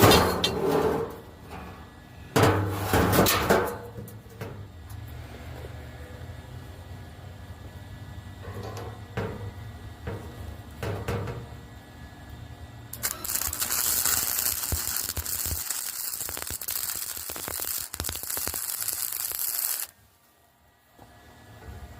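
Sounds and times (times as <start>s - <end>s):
welding arc crackling: 12.9s - 20.0s.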